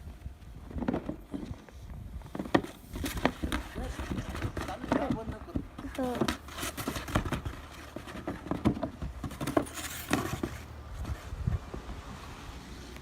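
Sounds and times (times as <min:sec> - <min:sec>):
wind rumble on microphone: 0:00.0 - 0:05.4, 0:10.8 - 0:13.0.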